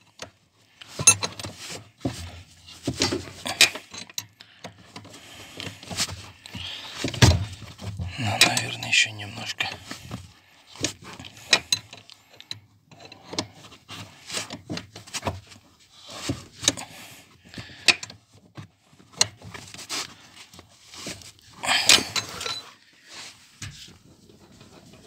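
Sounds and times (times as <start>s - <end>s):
wrench scraping: 21.7s - 22.6s.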